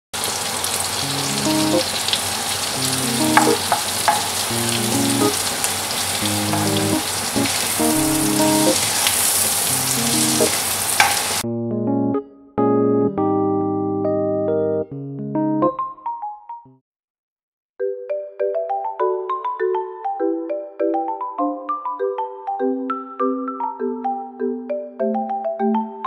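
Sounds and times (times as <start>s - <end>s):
vegetables sizzling in hot oil: 0.2s - 11.4s
soft electric piano music: 1.0s - 2.1s, 2.8s - 10.6s, 11.4s - 16.6s
spoon stirring in a pan: 3.1s - 11.4s.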